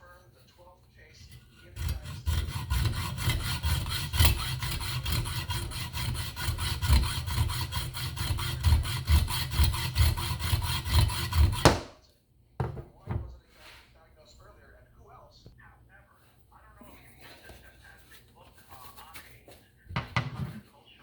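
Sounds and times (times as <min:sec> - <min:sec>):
hacksaw cutting metal: 0:01.2 - 0:11.9.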